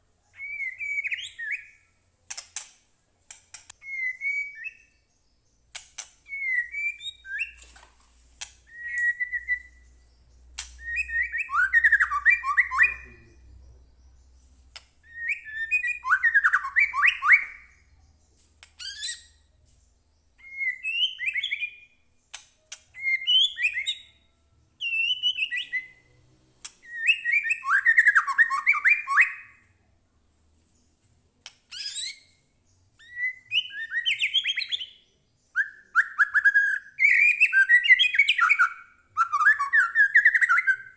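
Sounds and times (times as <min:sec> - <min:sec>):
bird singing whistled phrases: 0:00.4 - 0:01.8, 0:03.8 - 0:05.0, 0:06.3 - 0:07.6, 0:08.7 - 0:09.9, 0:10.7 - 0:13.6, 0:15.0 - 0:17.9, 0:20.4 - 0:22.0, 0:23.0 - 0:24.2, 0:24.8 - 0:26.0, 0:26.8 - 0:29.6, 0:33.0 - 0:40.9.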